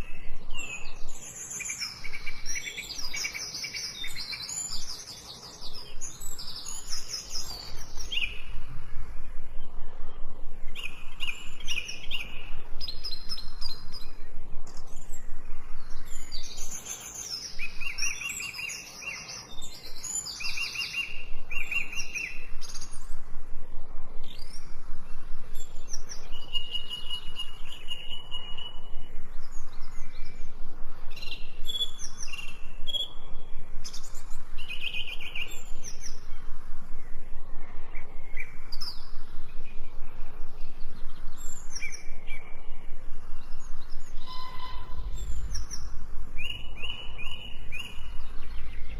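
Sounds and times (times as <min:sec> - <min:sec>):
birds chirping: 0:00.0 - 0:23.2, 0:24.2 - 0:48.9.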